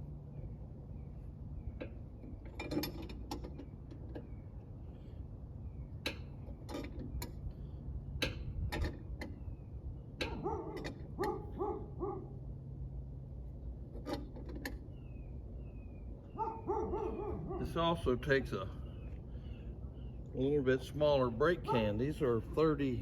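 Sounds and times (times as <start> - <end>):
steady low hum: 0.0 - 23.0
dog yelping: 10.3 - 12.4, 16.3 - 17.7, 21.7 - 22.0.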